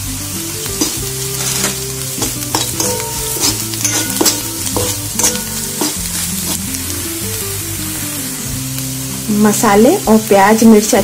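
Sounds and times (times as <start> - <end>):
food sizzling in hot oil: 0.0 - 11.0
metal spoon stirring and scraping: 0.7 - 6.8
spoon clicking against pan: 1.6 - 6.6.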